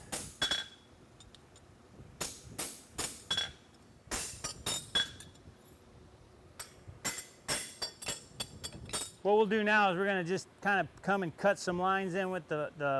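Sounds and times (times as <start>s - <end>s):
hammer striking steel punch: 0.0s - 0.8s, 2.2s - 5.3s, 6.6s - 8.3s.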